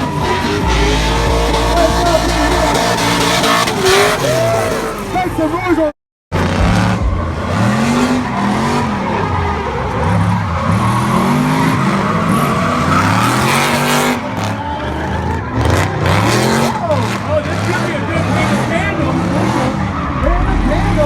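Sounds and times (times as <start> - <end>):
car engine revving: 0.0 - 21.0
tyre squeal and skidding: 6.8 - 21.0.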